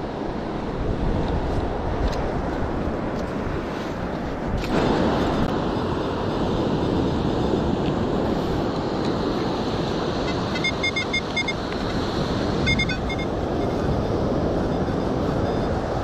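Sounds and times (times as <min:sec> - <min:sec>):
wind: 0:00.0 - 0:16.0
metal detector beeps: 0:10.2 - 0:16.0.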